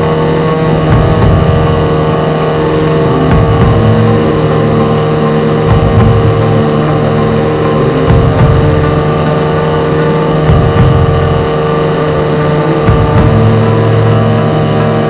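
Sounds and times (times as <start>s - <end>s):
model airplane motor and propeller: 0.0s - 15.0s
wind rumble on microphone: 0.0s - 15.0s.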